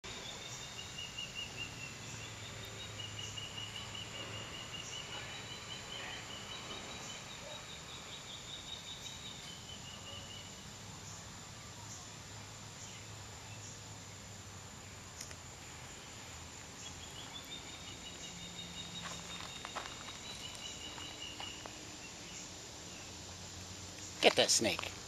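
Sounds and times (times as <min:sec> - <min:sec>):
high wavering bird song: 0:00.1 - 0:12.1, 0:15.8 - 0:23.4.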